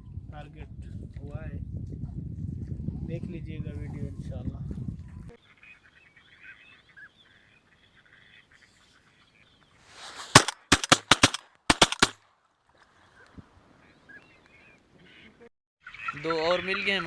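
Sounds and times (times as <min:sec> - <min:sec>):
faint duck calls: 0:05.2 - 0:09.8, 0:13.0 - 0:17.0
shotgun shots: 0:10.2 - 0:12.2.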